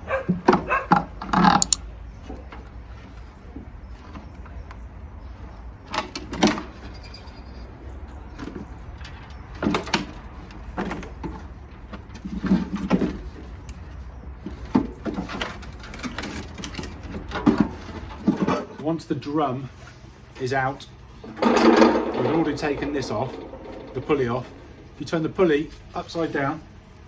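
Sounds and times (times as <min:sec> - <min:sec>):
metal parts knocking and clunking: 0:00.3 - 0:02.6, 0:21.2 - 0:26.2
steady low hum: 0:21.1 - 0:27.0.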